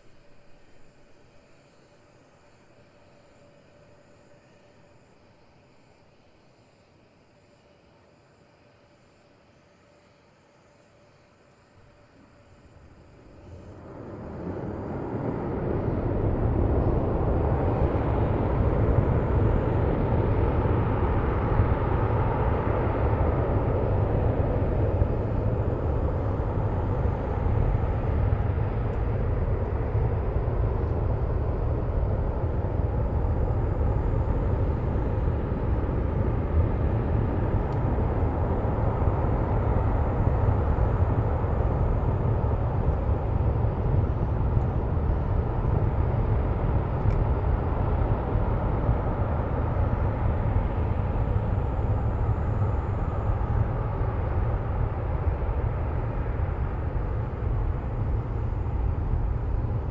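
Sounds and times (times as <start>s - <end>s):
distant rocket engine roar: 12.9s - 59.9s.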